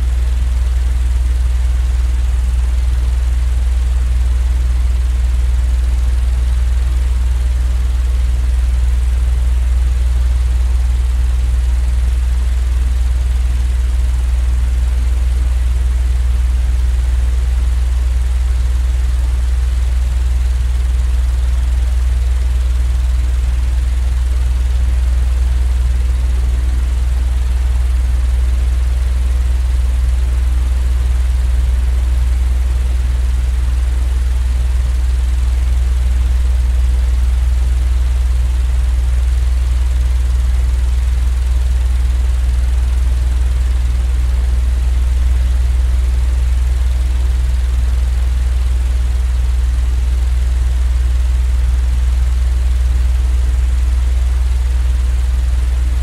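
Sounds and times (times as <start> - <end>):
mechanical drone with hum and hiss: 35.9 - 36.8, 42.4 - 51.4.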